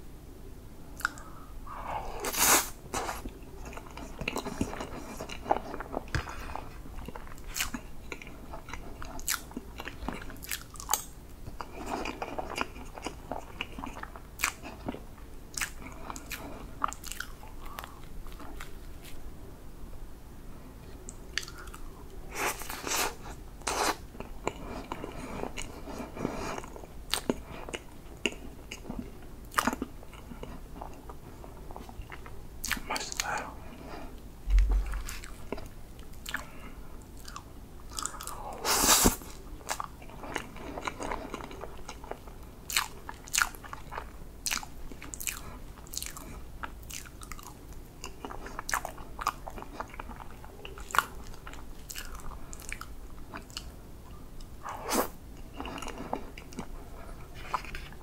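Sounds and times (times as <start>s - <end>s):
wet chewing and lip smacks: 7.0s - 19.2s, 21.1s - 21.9s, 23.6s - 33.4s, 34.5s - 36.5s, 39.0s - 53.7s.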